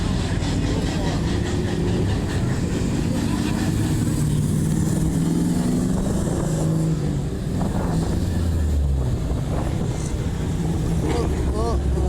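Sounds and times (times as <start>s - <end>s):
car engines droning: 0.0s - 12.0s.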